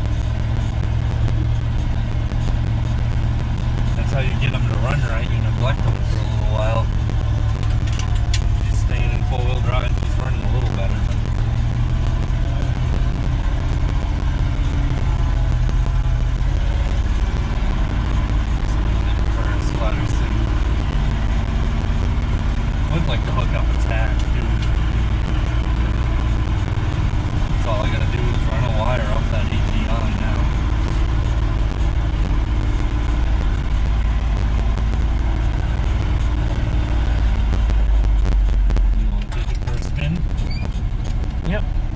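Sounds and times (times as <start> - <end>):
truck engine rumbling: 0.0 - 41.9.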